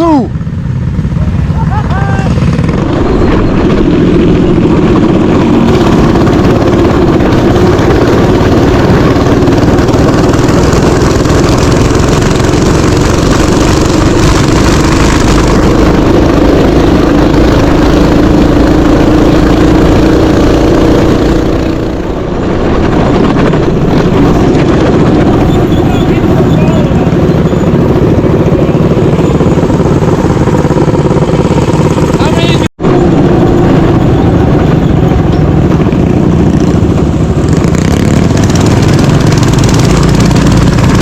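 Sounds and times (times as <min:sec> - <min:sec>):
mini bike engine running: 0:00.0 - 0:41.0.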